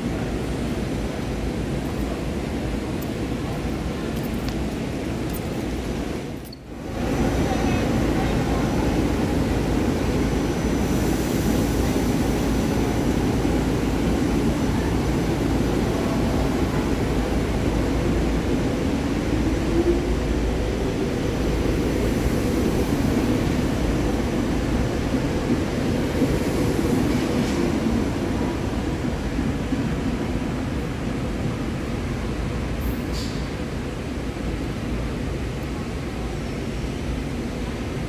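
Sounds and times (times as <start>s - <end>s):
train rumbling: 0.0s - 38.0s.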